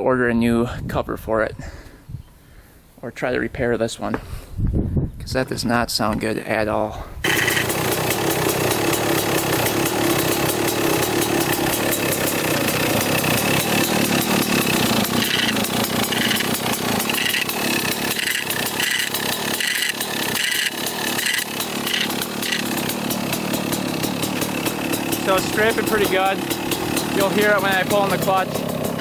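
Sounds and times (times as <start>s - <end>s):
dirt bike engine running: 7.2s - 29.0s
metallic scraping: 11.6s - 29.0s.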